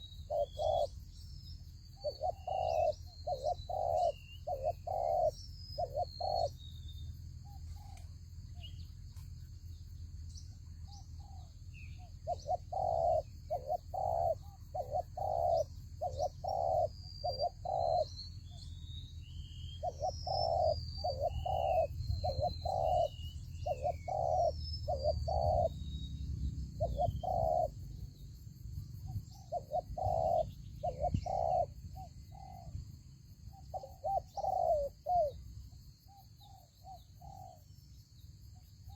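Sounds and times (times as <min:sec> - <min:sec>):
doves cooing: 0:00.0 - 0:01.0, 0:02.0 - 0:06.6, 0:11.0 - 0:18.2, 0:19.8 - 0:25.8, 0:26.8 - 0:27.9, 0:29.0 - 0:32.8, 0:33.7 - 0:35.6
small birds chirping: 0:00.0 - 0:38.9.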